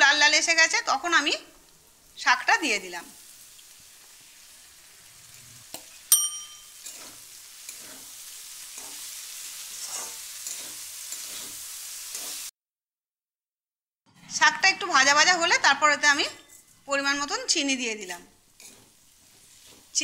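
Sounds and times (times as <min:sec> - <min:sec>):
vegetables sizzling in oil: 0:00.0 - 0:12.6, 0:14.4 - 0:20.0
spatula scraping a pan: 0:03.6 - 0:12.5, 0:16.0 - 0:20.0
bright ringing ding: 0:06.1 - 0:06.8.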